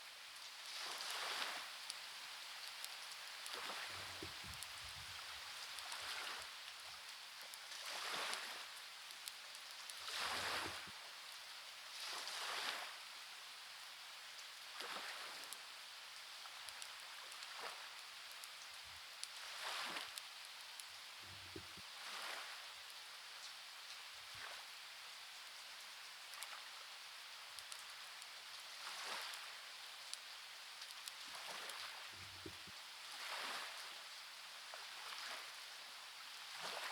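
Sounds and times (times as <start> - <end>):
rain hiss: 0.0 - 36.9
faint clicks: 27.5 - 32.8.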